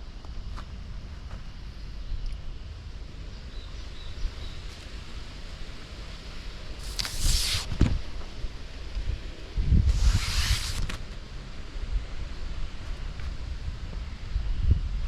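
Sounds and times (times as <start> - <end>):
rustling: 6.8 - 7.8, 9.9 - 11.0
wind rumble on microphone: 7.7 - 15.0.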